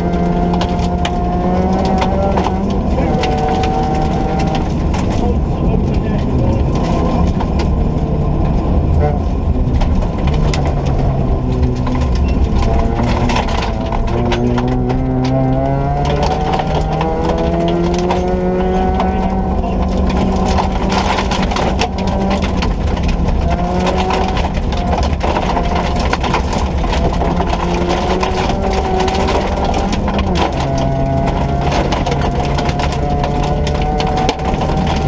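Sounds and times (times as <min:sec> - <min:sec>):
car engine revving hard: 0:00.0 - 0:35.0
low rumble: 0:00.0 - 0:35.0
clicks and knocks: 0:09.4 - 0:35.0.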